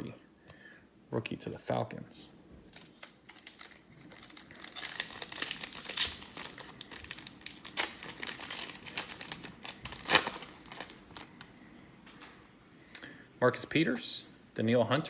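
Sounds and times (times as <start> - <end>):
foil wrapper crinkling and tearing: 2.6 - 12.4.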